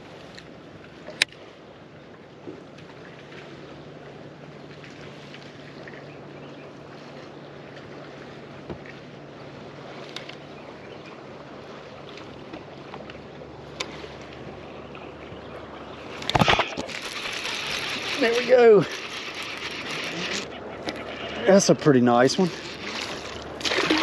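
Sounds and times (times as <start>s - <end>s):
wind: 0.0s - 24.0s
electric trolling motor humming: 6.2s - 24.0s
water wash: 11.1s - 24.0s.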